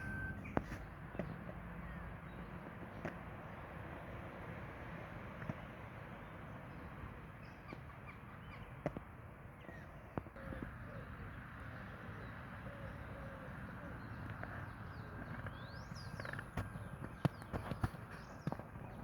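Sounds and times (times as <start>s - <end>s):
birds calling: 0.0s - 2.6s, 9.6s - 19.0s
outdoor background hum: 0.0s - 19.0s.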